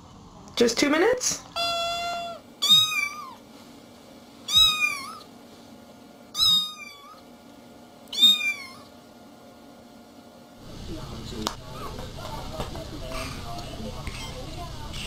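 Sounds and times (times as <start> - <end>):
cat meowing: 1.6 - 3.4, 4.5 - 5.3, 6.4 - 7.2, 8.1 - 8.9.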